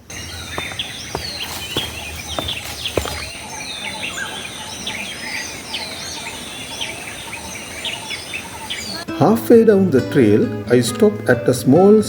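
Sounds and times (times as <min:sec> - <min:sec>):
birds chirping and whistling: 0:00.0 - 0:09.1.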